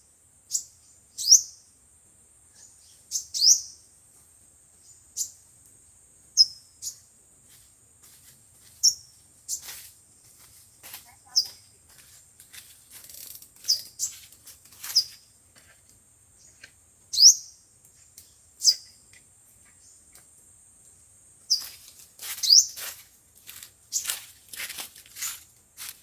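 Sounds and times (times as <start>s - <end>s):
sunbird high chirps: 0.0s - 1.8s, 2.4s - 4.0s, 4.7s - 5.6s, 6.2s - 11.8s, 13.0s - 15.3s, 16.3s - 20.2s, 21.0s - 23.0s, 23.8s - 25.5s.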